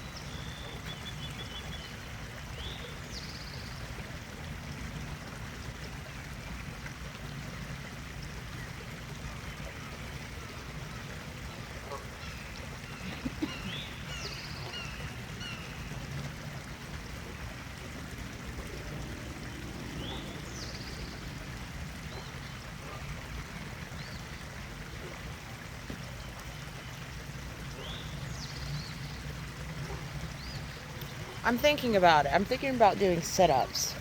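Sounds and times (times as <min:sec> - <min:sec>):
birds chirping: 0:08.5 - 0:34.0.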